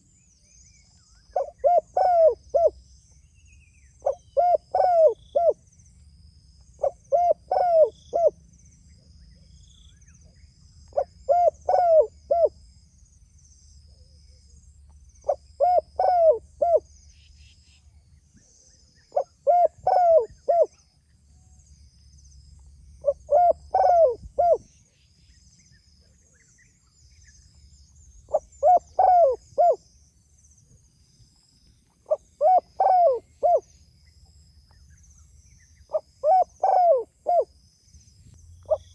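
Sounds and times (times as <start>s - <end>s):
dove cooing: 1.3s - 2.8s, 4.0s - 5.6s, 6.8s - 8.4s, 11.0s - 12.6s, 15.2s - 16.8s, 19.1s - 20.7s, 23.0s - 24.7s, 28.3s - 29.8s, 32.1s - 33.7s, 35.9s - 37.5s.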